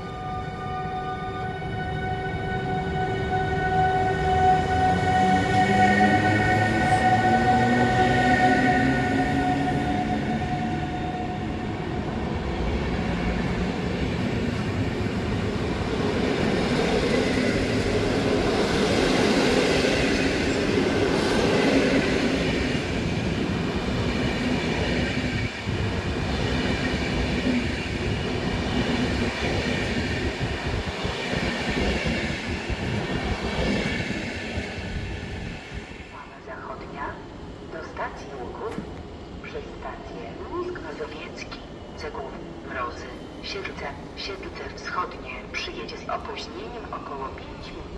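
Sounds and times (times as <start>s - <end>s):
train wheels rumbling: 2.5s - 36.6s.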